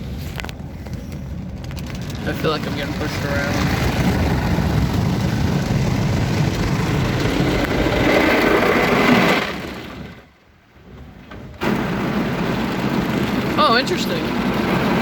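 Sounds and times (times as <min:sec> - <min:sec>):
car wash brushes scrubbing and spraying: 0:11.6 - 0:15.0.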